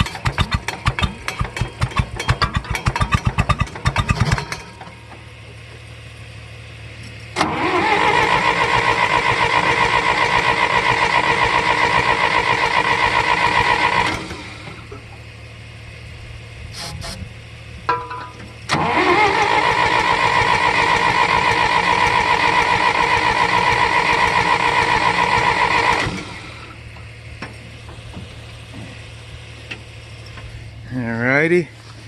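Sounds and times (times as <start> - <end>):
tractor starter cranking: 0.0 - 5.3, 7.4 - 15.1, 17.9 - 26.8.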